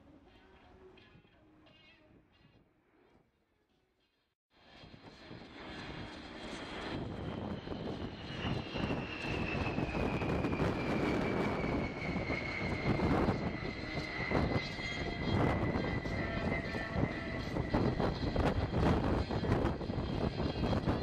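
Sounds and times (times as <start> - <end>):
high engine whine: 4.6 - 21.0
jet engines rumbling: 4.6 - 21.0.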